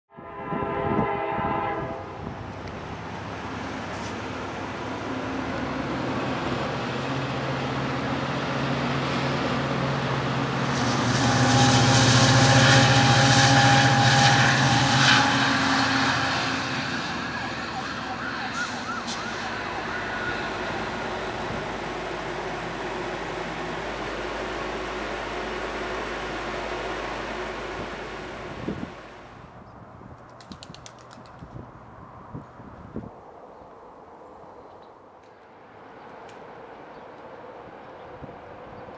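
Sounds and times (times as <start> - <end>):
train horn: 0.1 - 2.3, 10.8 - 21.5
diesel train passing: 0.1 - 38.9.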